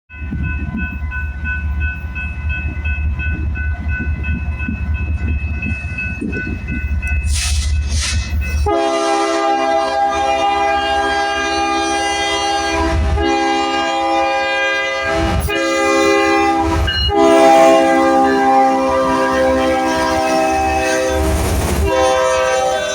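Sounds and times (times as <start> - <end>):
bell ringing: 0.1 - 8.7
diesel locomotive rumbling: 0.1 - 22.9
locomotive air horn blasts: 7.3 - 22.9.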